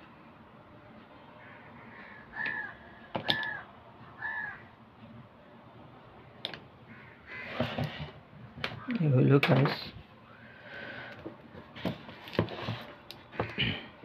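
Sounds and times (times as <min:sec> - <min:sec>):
bird giving harsh calls: 0:01.4 - 0:04.7.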